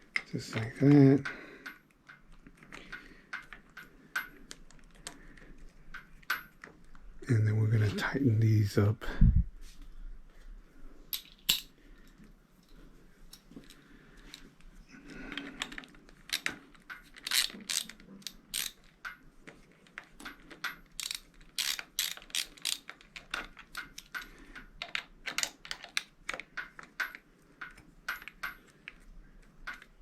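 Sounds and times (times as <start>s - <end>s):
ratchet clicking: 17.2s - 19.2s, 21.0s - 23.0s.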